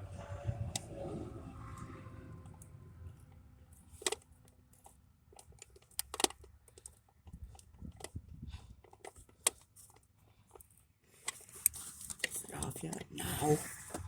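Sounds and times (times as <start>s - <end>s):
tool clicking and scraping: 2.5s - 14.0s.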